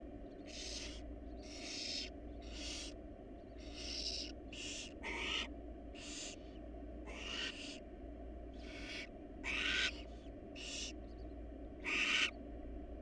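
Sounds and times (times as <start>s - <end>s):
steady low hum: 0.0s - 13.0s
owls screeching: 0.5s - 2.9s, 3.6s - 6.4s, 7.1s - 7.8s, 8.6s - 10.0s, 10.6s - 10.9s, 11.8s - 12.4s.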